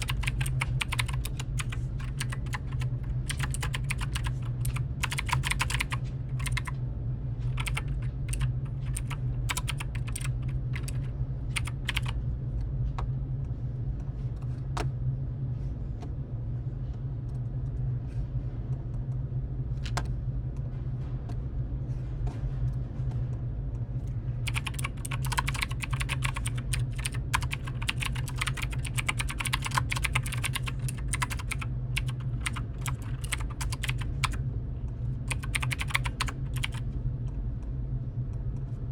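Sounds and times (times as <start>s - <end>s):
keyboard typing clicks: 0.0s - 6.7s, 7.6s - 12.2s, 24.4s - 34.4s, 35.3s - 36.8s
steady low hum: 0.0s - 38.9s.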